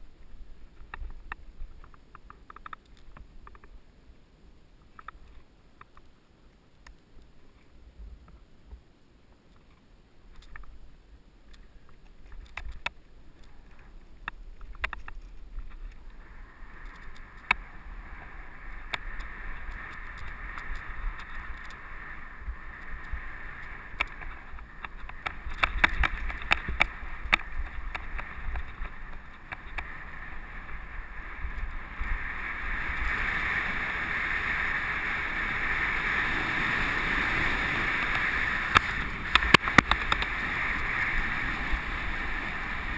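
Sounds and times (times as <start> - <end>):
bike clicks and rattles: 0.7 - 3.8, 11.5 - 16.2, 16.8 - 31.7, 38.1 - 40.5
bike tyre noise on dirt: 4.8 - 42.9
wind rushing over microphone: 14.5 - 42.9.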